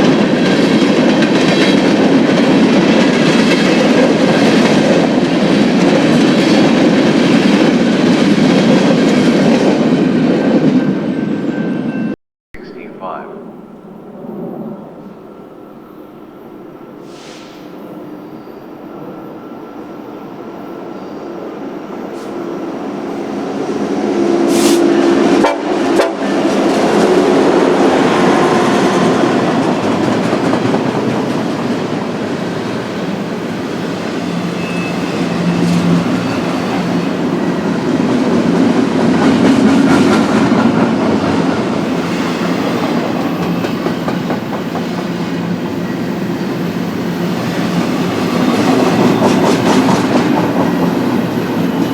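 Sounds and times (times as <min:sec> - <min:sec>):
train cars rattling on rails: 0:00.0 - 0:12.1, 0:21.5 - 0:51.9
freight train passing: 0:00.0 - 0:51.9.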